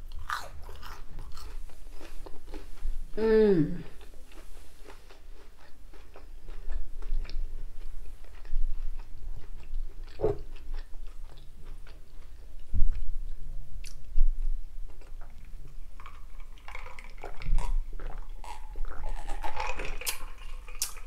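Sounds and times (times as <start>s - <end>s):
person chewing chips: 0.0s - 13.0s, 14.9s - 21.0s.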